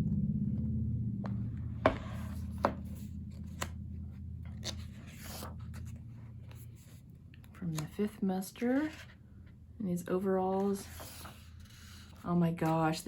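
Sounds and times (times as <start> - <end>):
low hum: 0.0 - 13.0
book pages turning: 1.9 - 3.8, 4.6 - 9.2, 10.4 - 12.9.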